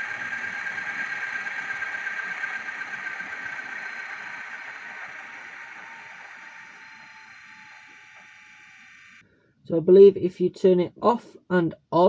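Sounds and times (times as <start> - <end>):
model diesel engine winding down: 0.0 - 9.2.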